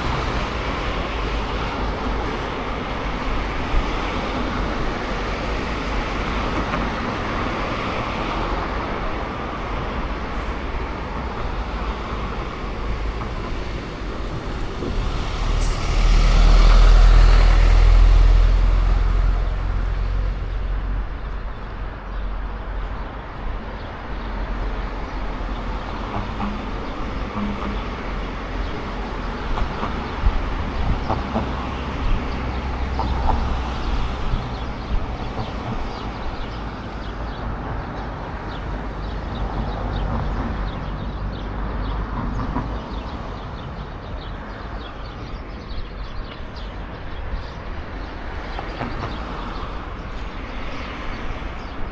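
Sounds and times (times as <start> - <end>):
heavy vehicle passing: 0.0 - 21.2
traffic rumble: 0.0 - 51.9.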